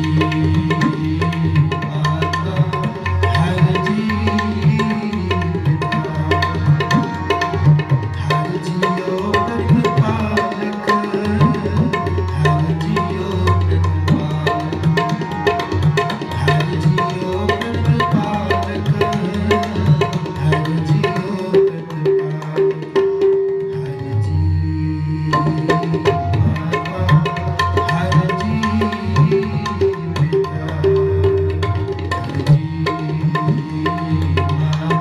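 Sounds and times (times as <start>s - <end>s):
harmonium melody: 0.0s - 35.0s
tabla playing a rhythm: 0.0s - 35.0s.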